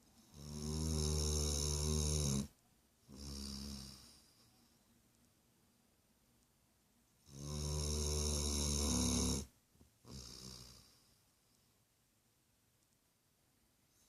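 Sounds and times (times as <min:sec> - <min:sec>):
dog snoring: 0:00.2 - 0:04.4, 0:07.2 - 0:11.1.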